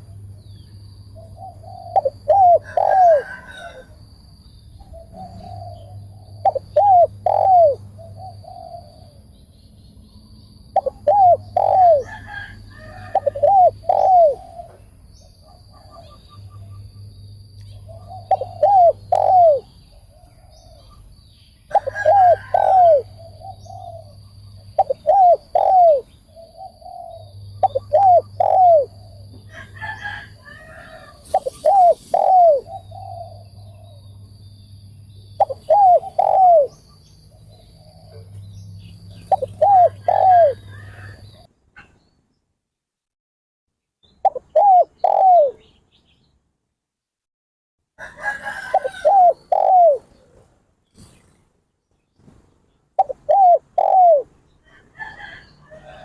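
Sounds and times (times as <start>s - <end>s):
dove cooing: 1.2s - 3.9s, 4.8s - 9.2s, 10.8s - 14.8s, 17.8s - 21.0s, 21.7s - 34.0s, 35.4s - 36.8s, 39.1s - 41.5s, 44.2s - 45.7s, 48.2s - 50.4s, 53.0s - 54.3s.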